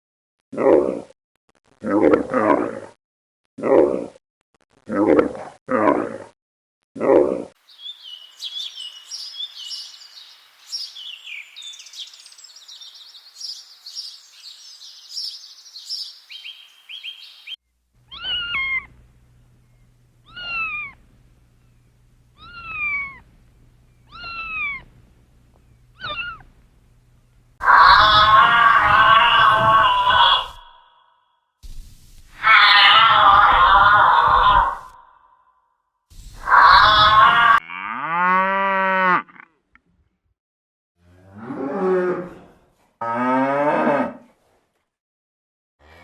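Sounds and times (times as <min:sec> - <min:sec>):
dense high-pitched chirping: 0:07.7 - 0:17.6
cat meowing: 0:22.4 - 0:23.2.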